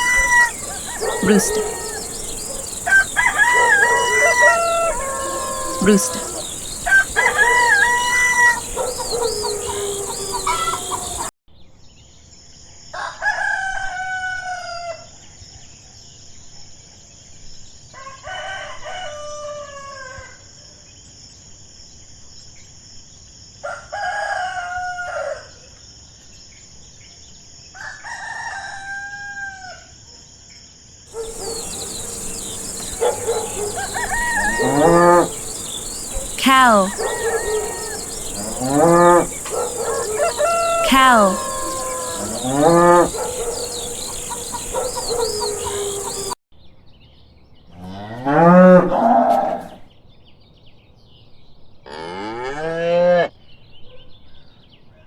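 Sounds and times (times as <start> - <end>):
hens clucking: 0.0 - 11.3, 31.2 - 46.4
roosters crowing: 0.0 - 11.3, 31.1 - 46.4.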